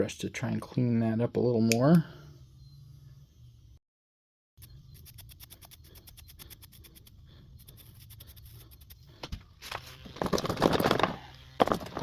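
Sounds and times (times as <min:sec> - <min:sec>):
electric toothbrush buzzing: 0:07.7 - 0:12.0.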